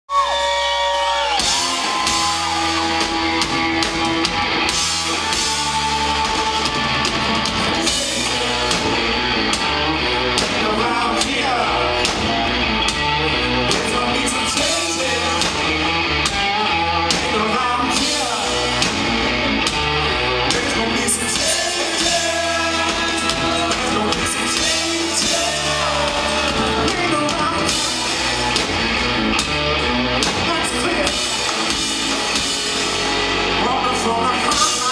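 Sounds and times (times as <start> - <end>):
live rock band playing: 0.1 - 34.9
person singing: 4.7 - 12.3, 13.1 - 15.9, 20.4 - 28.4.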